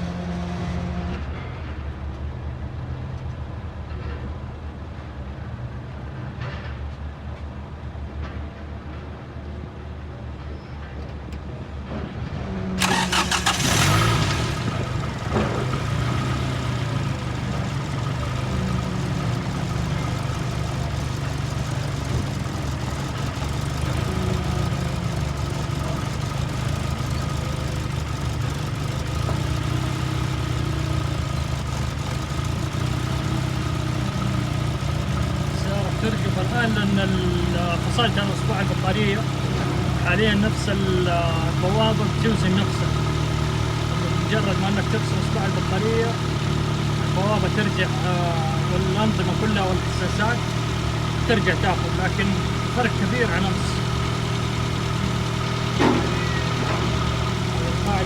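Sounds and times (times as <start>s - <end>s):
car engine starting and idling: 12.8s - 58.0s.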